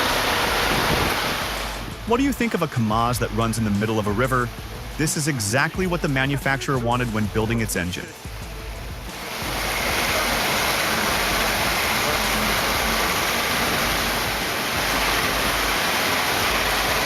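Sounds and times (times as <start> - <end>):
low rumble: 0.0 - 2.5
river water rushing: 0.0 - 17.0.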